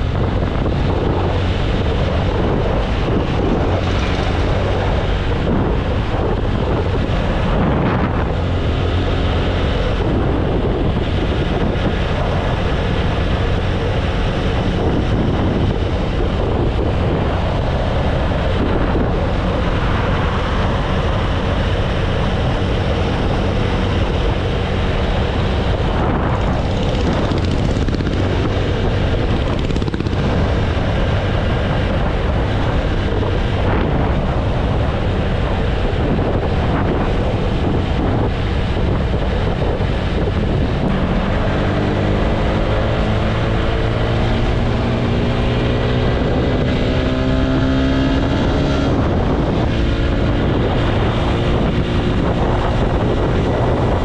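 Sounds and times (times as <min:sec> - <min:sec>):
motorcycle engine cruising: 0:00.0 - 0:54.0
wind buffeting microphone: 0:00.0 - 0:54.0.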